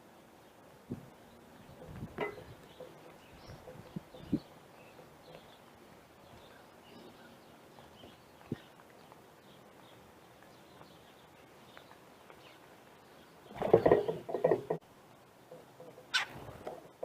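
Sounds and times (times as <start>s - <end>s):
harsh bird calls: 15.9s - 16.5s.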